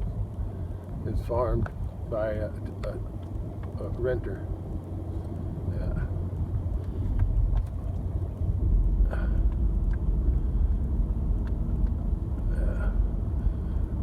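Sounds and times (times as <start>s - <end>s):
road noise: 0.0s - 14.0s
truck engine rumble: 0.0s - 14.0s.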